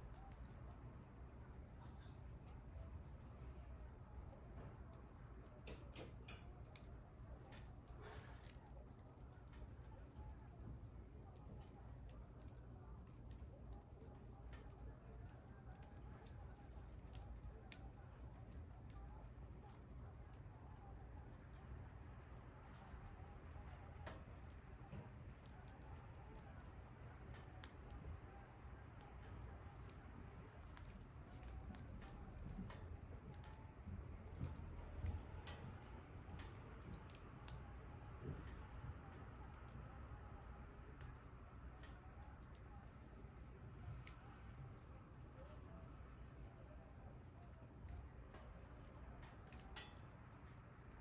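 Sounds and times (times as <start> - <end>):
bonfire crackling: 0.0 - 51.0
fire sharp pops: 0.0 - 51.0.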